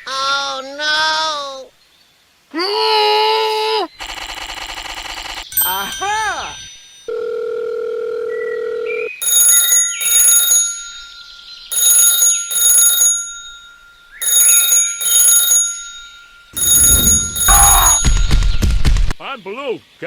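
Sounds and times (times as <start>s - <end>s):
electronic telephone ringing: 4.0s - 18.9s
dial tone: 7.1s - 9.1s, 16.6s - 18.0s.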